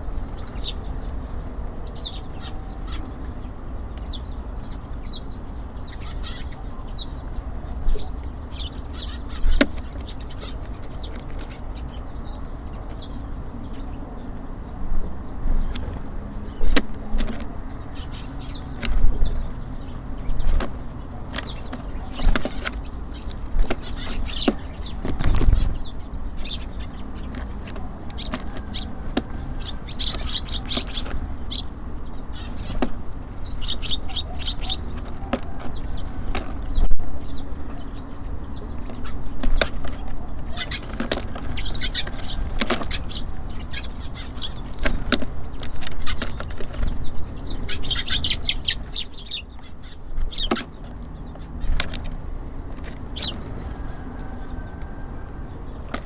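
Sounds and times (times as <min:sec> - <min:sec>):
small birds chirping: 0:00.0 - 0:56.0
wing flutters: 0:23.5 - 0:28.9.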